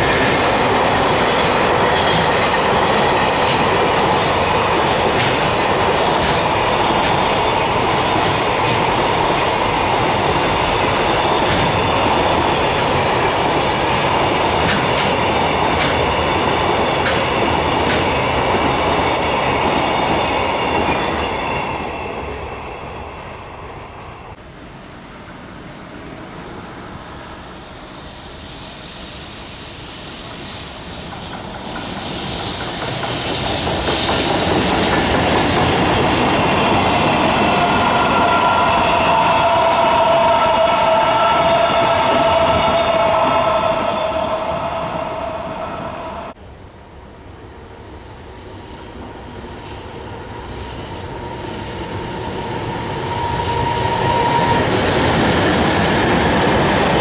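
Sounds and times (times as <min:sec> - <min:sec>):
train wheels rumbling on rail: 0:00.0 - 0:24.4, 0:25.0 - 0:46.4, 0:48.4 - 0:57.0
faint high ringing: 0:45.0 - 0:48.9.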